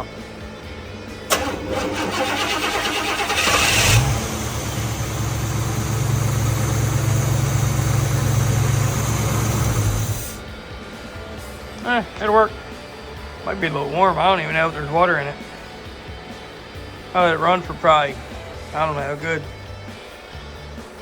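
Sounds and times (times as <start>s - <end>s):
engine starter cranking: 1.3s - 10.4s
car engine idling: 1.3s - 12.5s.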